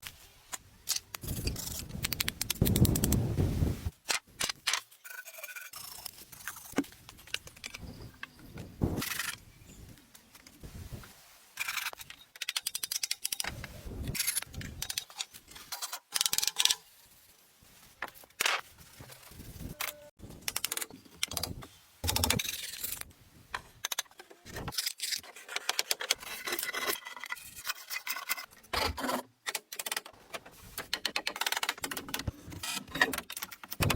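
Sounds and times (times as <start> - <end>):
hand-work scrapes and clicks: 11.6 - 16.8, 23.8 - 33.8.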